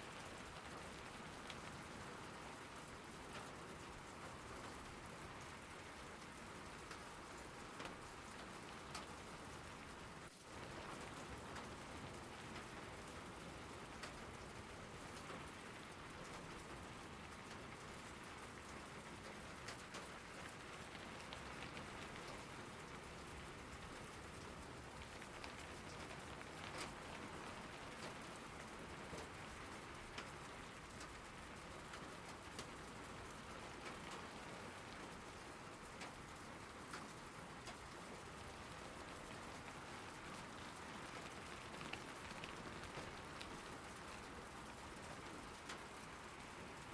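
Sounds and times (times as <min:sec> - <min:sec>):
rain falling: 0:00.0 - 0:46.9
raindrop ticks: 0:00.0 - 0:46.9.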